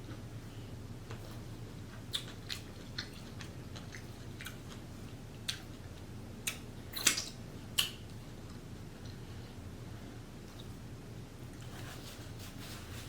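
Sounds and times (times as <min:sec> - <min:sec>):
person chewing with wet smacks: 0:01.1 - 0:09.2.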